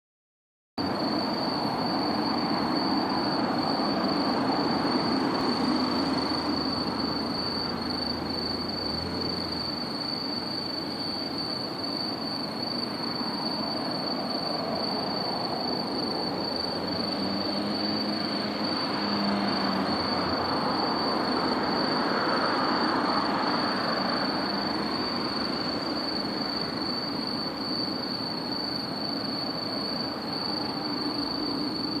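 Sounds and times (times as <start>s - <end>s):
vehicle travel rumble: 1.6s - 11.6s.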